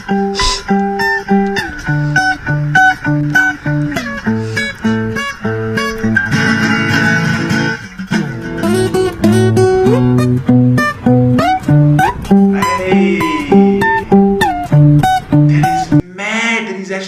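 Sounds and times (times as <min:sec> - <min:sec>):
fingerstyle acoustic guitar: 0:00.0 - 0:16.0.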